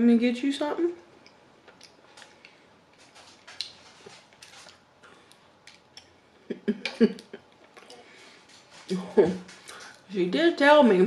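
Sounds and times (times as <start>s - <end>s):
mouth chewing with wet smacks: 1.2s - 2.6s, 3.4s - 6.2s.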